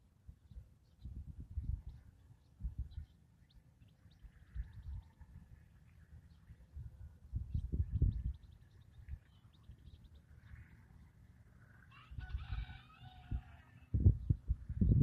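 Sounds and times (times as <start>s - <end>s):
low rumbling on microphone: 0.0s - 3.1s, 4.2s - 11.0s, 13.2s - 15.0s
rooster crowing: 11.9s - 13.9s.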